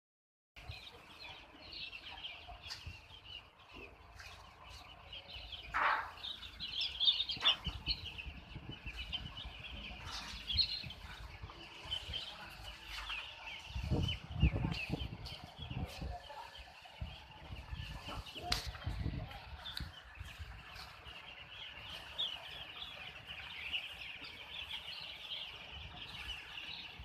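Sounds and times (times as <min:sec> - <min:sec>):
chickens peeping and clucking: 0:00.6 - 0:27.0.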